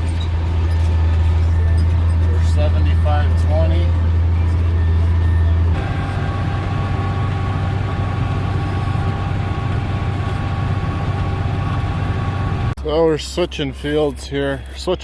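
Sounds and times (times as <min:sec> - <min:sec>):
tractor engine drone: 0:00.0 - 0:12.8
high whining tones: 0:04.4 - 0:12.8.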